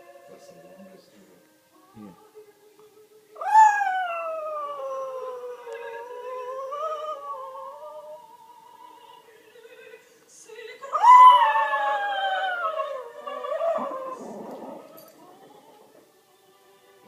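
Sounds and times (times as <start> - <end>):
faint music from a tv: 0.0 - 17.0
dog howling: 3.4 - 8.2, 10.9 - 16.0.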